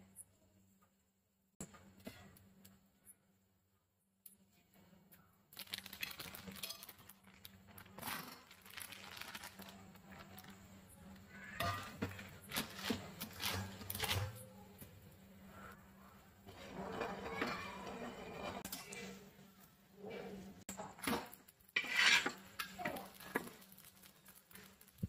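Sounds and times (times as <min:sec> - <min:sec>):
batter sizzling in hot oil: 0:05.6 - 0:14.3, 0:20.7 - 0:25.0.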